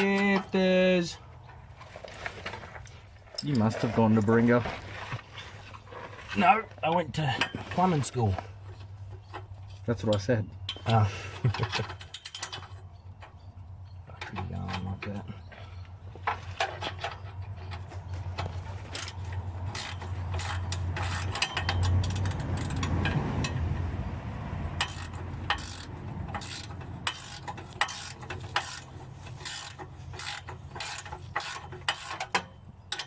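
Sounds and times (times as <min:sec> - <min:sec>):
wrench clicking and scraping on nut: 0:09.1 - 0:13.4, 0:16.2 - 0:23.8, 0:24.7 - 0:33.0.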